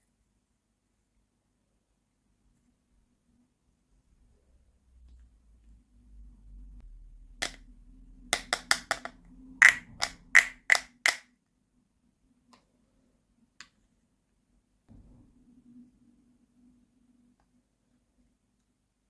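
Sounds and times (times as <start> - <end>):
plastic toy pieces clicking: 8.4 - 11.2.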